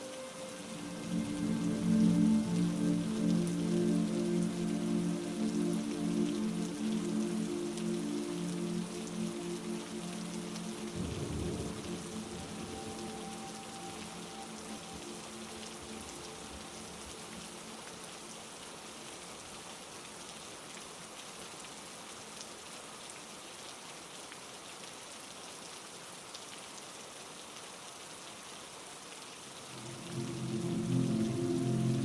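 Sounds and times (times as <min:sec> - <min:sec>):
soft sustained musical tone: 0:00.0 - 0:18.6, 0:29.7 - 0:32.0
heavy rain falling: 0:00.0 - 0:32.0.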